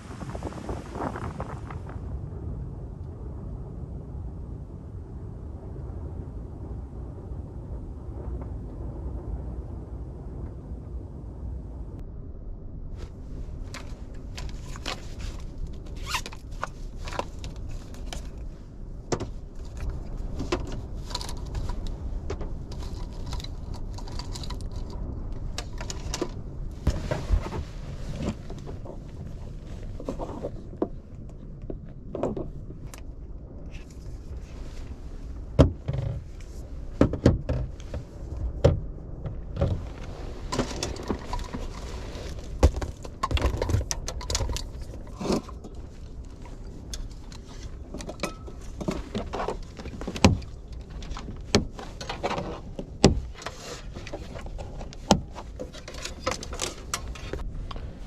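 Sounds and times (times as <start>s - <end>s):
strong wind on a car: 0.0s - 58.0s
objects handled inside a car: 12.9s - 58.0s.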